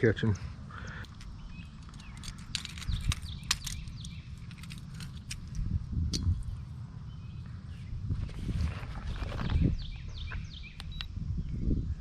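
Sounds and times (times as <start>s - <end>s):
bird chirps: 0.8s - 4.7s, 9.0s - 11.7s
handling clicks and rattling: 1.0s - 6.3s
wind buffeting microphone: 1.2s - 12.0s.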